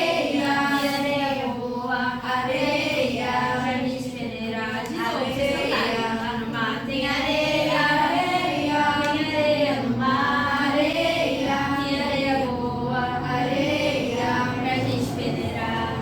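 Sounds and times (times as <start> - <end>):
group singing: 0.0 - 16.0.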